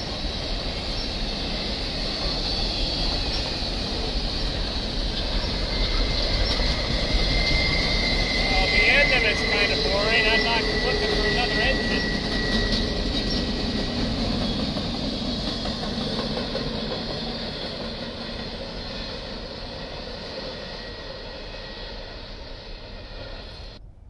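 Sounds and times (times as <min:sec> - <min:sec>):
freight train clattering on rails: 0:00.0 - 0:21.1.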